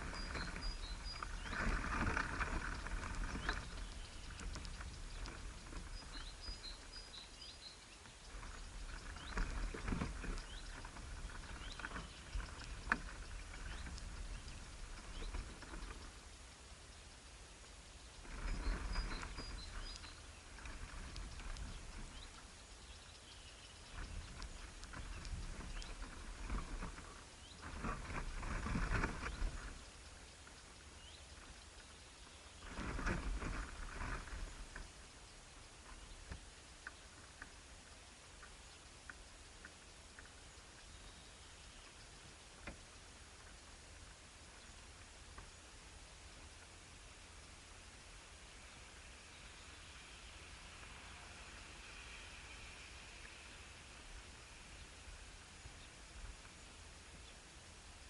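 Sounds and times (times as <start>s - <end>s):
rustling and tapping: 0.0s - 7.1s, 8.0s - 16.2s, 23.9s - 30.8s, 32.6s - 34.9s
small birds chirping: 0.0s - 58.0s.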